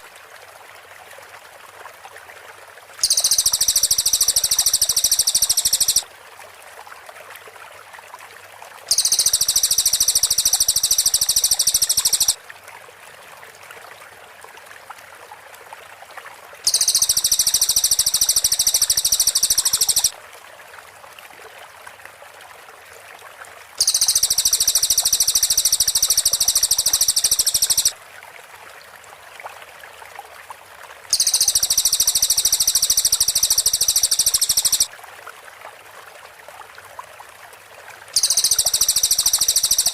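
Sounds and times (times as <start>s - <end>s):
faint background hiss: 0.0s - 39.9s
bird high-pitched rapid trill: 3.0s - 6.0s, 8.9s - 12.4s, 16.7s - 20.1s, 23.8s - 27.9s, 31.1s - 34.9s, 38.2s - 39.9s.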